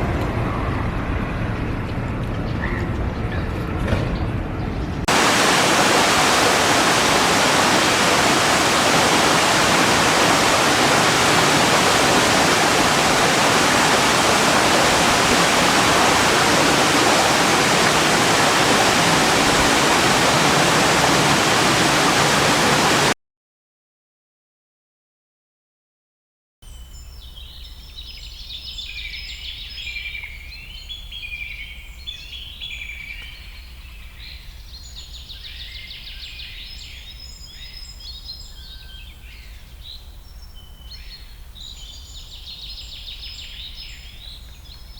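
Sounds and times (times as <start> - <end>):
water rushing: 5.1 - 23.2.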